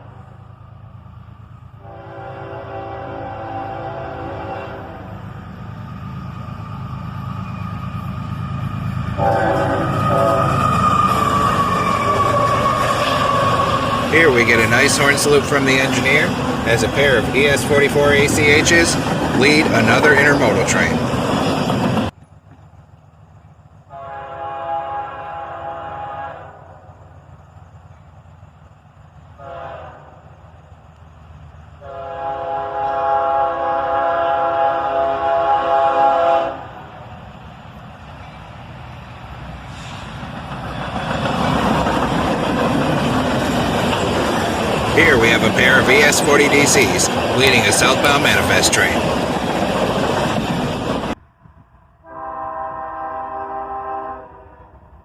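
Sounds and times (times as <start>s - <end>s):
passing train rumble: 0.0s - 55.0s
locomotive air horn blasts: 1.8s - 5.2s, 9.2s - 15.5s, 23.9s - 26.8s, 29.4s - 30.2s, 31.8s - 36.8s, 52.0s - 54.8s.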